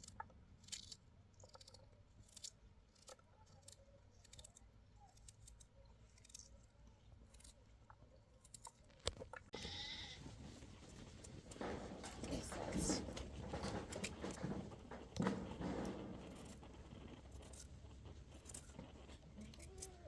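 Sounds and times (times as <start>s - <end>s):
livestock bleating: 9.6s - 10.4s
faint clicks and taps: 10.2s - 20.0s.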